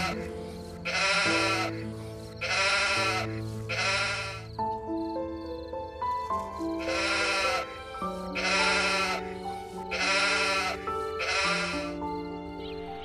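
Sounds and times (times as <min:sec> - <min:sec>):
animal bleating: 0:00.0 - 0:04.5, 0:06.8 - 0:12.0
background music: 0:00.0 - 0:13.0.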